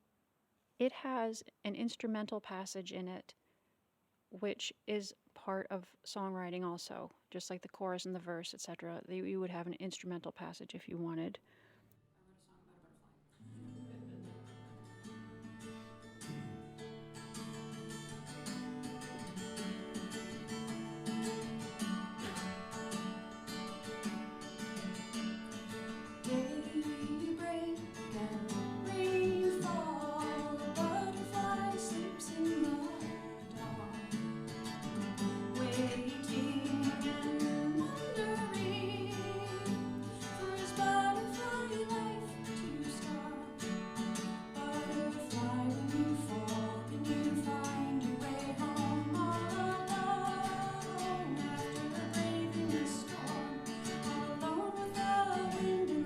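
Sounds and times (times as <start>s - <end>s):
acoustic guitar strumming: 13.4s - 56.0s.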